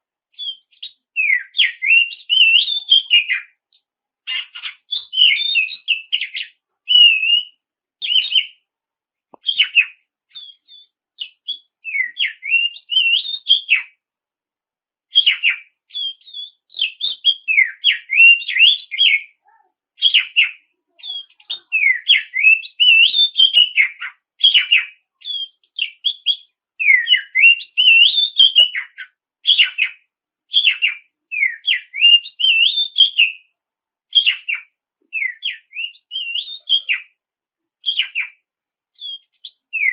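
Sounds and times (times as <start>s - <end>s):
songbird whistling varied phrases: 0.3s - 3.6s, 4.3s - 8.6s, 9.4s - 14.0s, 15.1s - 33.5s, 34.1s - 37.2s, 37.8s - 38.4s, 39.0s - 39.9s.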